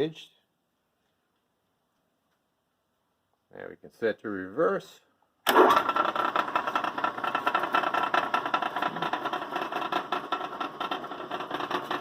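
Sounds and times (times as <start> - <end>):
fast even clatter: 5.5 - 12.0.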